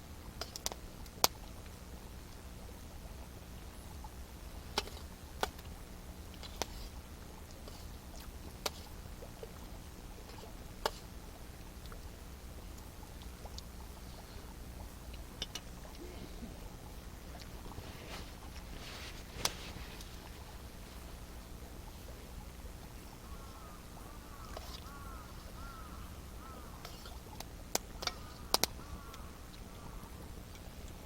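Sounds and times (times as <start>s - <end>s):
wood fire crackling: 17.5s - 26.6s.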